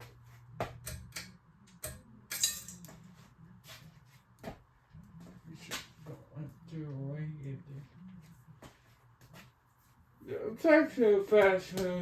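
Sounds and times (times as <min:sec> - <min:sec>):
low steady hum: 0:00.0 - 0:12.0
metal chain clinking: 0:02.3 - 0:02.9.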